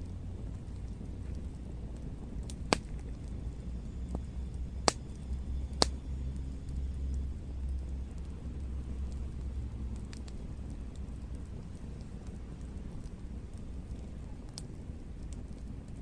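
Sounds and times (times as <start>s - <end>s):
steady low rumble: 0.0s - 16.0s
sharp cracks: 2.5s - 3.0s.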